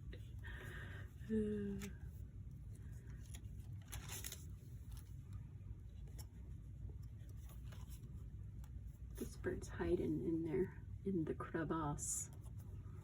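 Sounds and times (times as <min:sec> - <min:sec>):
low room hum: 0:00.0 - 0:13.0
paper pages rustling: 0:02.6 - 0:09.4.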